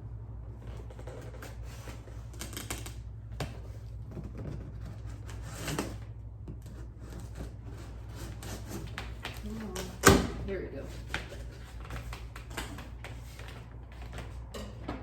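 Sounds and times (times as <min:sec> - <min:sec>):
tape and cardboard crackling: 0:00.4 - 0:15.0
knife cutting cardboard box: 0:00.6 - 0:09.5.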